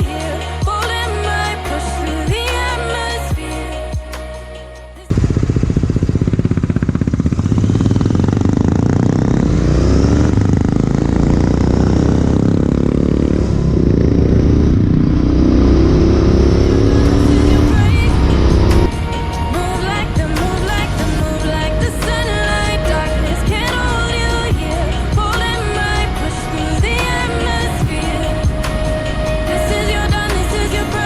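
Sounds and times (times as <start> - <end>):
music: 0.0 - 5.1, 16.8 - 31.0
motorcycle engine revving: 5.1 - 31.0.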